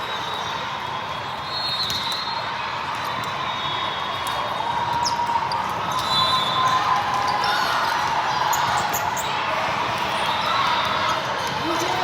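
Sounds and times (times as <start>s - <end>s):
crowd chatter: 0.0s - 12.0s.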